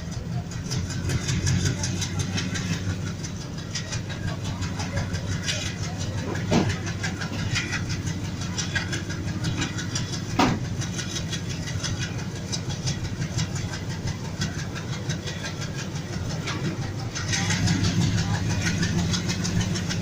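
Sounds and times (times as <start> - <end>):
rapid clicking of wheels: 0.0 - 20.0
train low rumble: 0.0 - 20.0
sharp knocks: 10.3 - 10.8.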